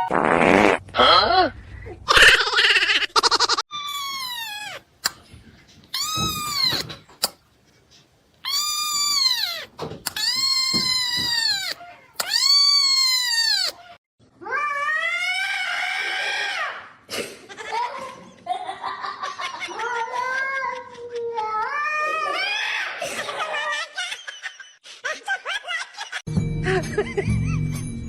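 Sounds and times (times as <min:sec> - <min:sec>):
cat meowing: 0:03.8 - 0:04.8, 0:05.9 - 0:06.9, 0:08.4 - 0:14.0.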